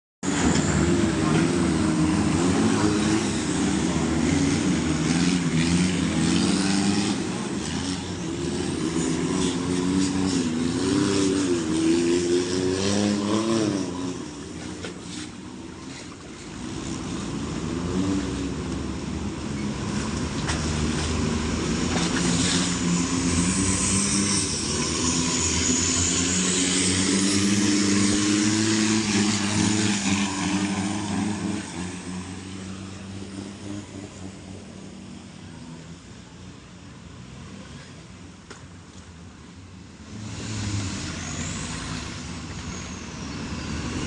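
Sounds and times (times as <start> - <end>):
racing boat engine passing: 20.8 - 34.8.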